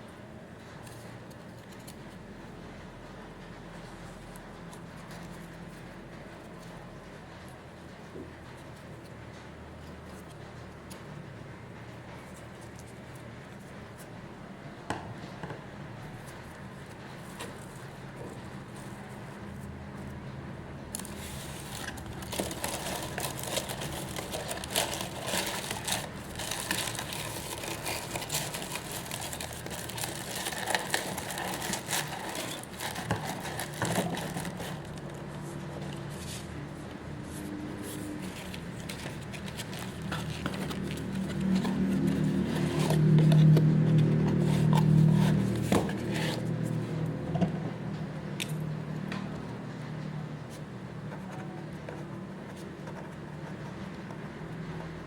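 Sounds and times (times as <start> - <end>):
plastic packing crinkling: 21.0 - 35.4, 38.2 - 43.6.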